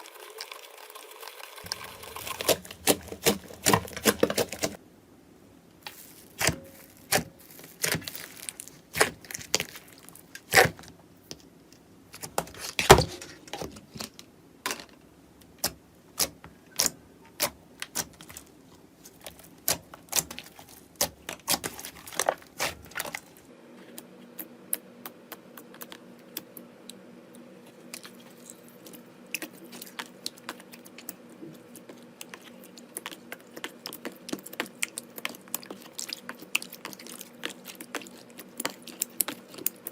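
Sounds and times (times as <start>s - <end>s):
faint steady hum: 1.6s - 39.9s
slime clicking and crackling: 27.9s - 39.9s.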